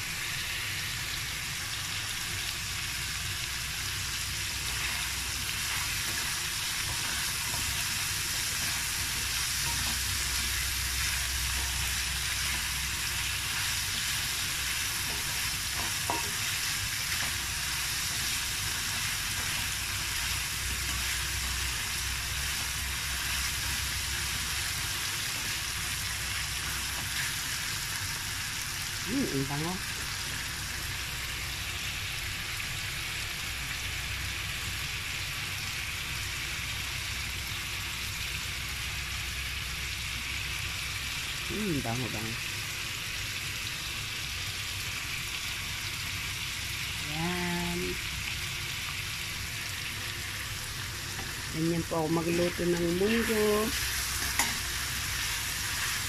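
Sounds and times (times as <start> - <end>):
food sizzling in a pan: 0.0 - 56.0
spatula stirring: 4.6 - 21.6.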